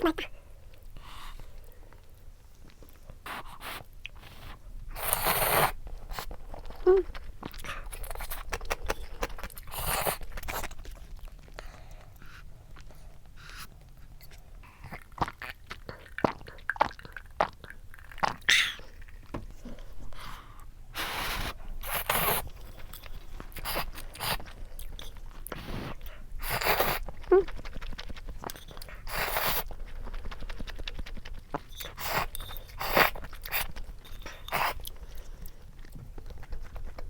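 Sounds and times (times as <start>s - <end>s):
chewing: 0.1s - 37.0s.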